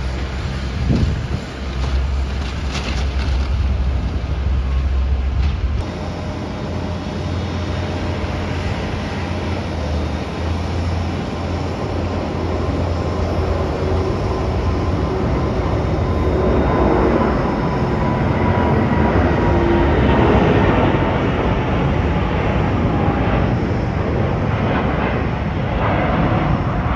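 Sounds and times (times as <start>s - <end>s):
faint steady whine: 0.0s - 19.9s
jet engines rumbling: 0.0s - 26.9s.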